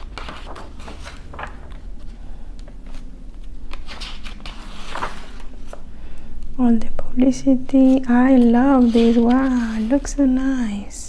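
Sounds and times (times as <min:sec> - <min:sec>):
book pages rustling: 0:00.0 - 0:05.8, 0:07.8 - 0:10.4.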